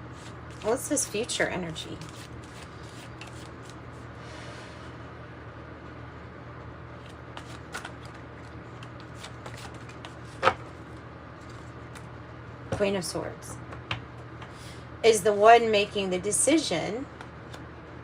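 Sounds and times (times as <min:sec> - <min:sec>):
cards being shuffled: 0:00.0 - 0:04.0, 0:07.0 - 0:12.1
steady low hum: 0:00.0 - 0:18.0.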